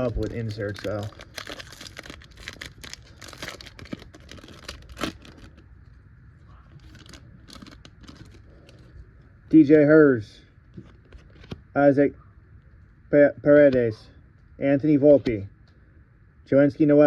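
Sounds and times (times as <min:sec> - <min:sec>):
wrapper torn and crinkled: 0:00.0 - 0:05.7, 0:06.7 - 0:08.8.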